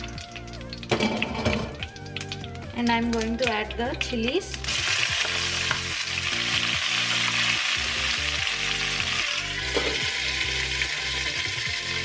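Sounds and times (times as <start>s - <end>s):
background music: 0.0s - 12.0s
chilies sizzling in hot oil: 0.0s - 12.0s
glass lid placed on pan: 9.7s - 10.0s.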